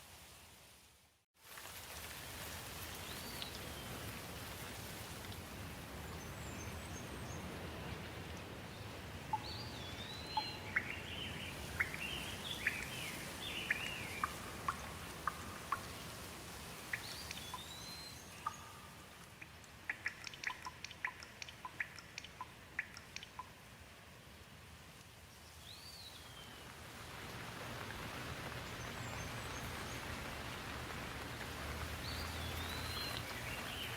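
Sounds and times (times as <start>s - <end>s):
steady rain falling: 0.0s - 33.9s
sharp water drips: 1.5s - 24.0s, 24.9s - 33.9s
bird chirping: 9.3s - 16.1s, 16.9s - 23.5s, 32.0s - 33.9s.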